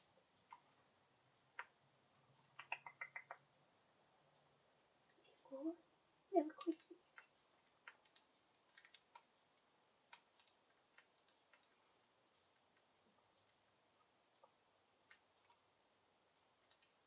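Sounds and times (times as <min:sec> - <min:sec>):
bird beaks pecking food: 0:00.4 - 0:03.5, 0:06.6 - 0:15.8.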